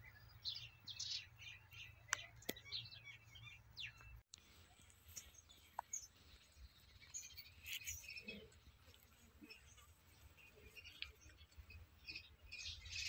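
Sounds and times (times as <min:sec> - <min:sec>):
faint small bird chirps: 0:00.0 - 0:08.6.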